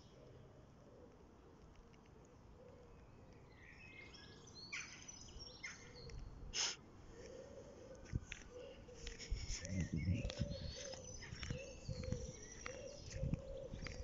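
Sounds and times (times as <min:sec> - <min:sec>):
low outdoor background noise: 0:00.0 - 0:14.0
birds chirping: 0:07.2 - 0:14.0.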